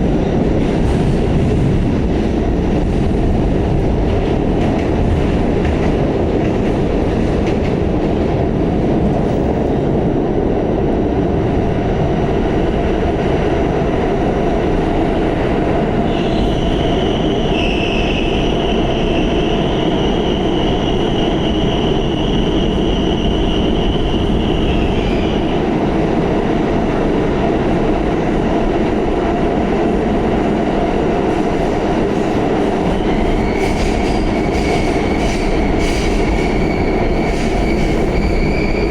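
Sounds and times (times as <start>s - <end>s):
subway car rumbling on rails: 0.0s - 38.9s
high-pitched wheel squeal: 33.2s - 38.9s.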